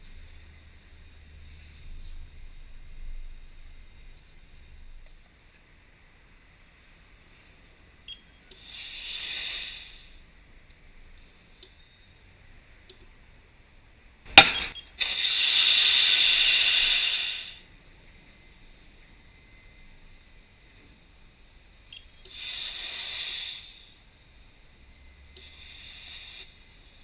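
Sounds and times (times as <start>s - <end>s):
hissing bursts: 8.5s - 10.3s, 14.3s - 17.7s, 22.2s - 24.1s, 25.4s - 27.0s
sharp loud snap: 14.3s - 15.5s.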